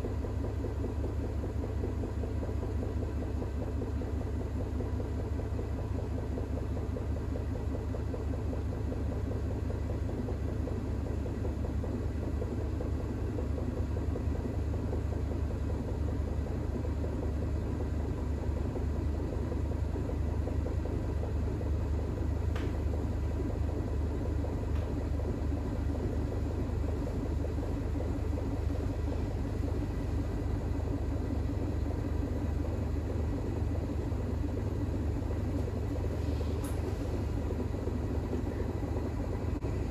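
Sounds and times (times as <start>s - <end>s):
faint motor whine: 0.0s - 39.9s
washing machine spinning: 0.0s - 39.9s.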